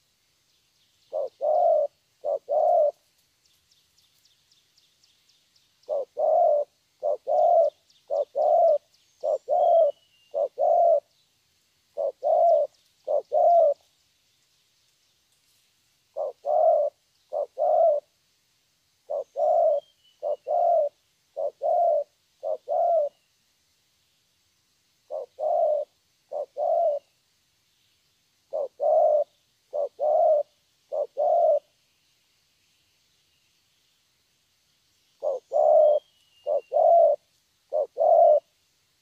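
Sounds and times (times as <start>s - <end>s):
dove cooing: 1.1s - 3.1s, 5.8s - 11.1s, 11.9s - 13.9s, 16.1s - 18.1s, 19.0s - 23.2s, 25.1s - 27.1s, 28.5s - 31.7s, 35.2s - 38.5s.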